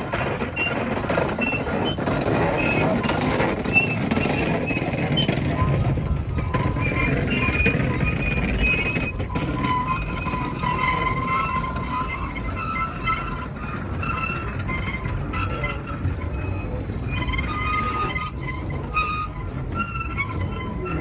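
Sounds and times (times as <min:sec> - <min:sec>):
train rumbling on track: 0:00.0 - 0:21.0.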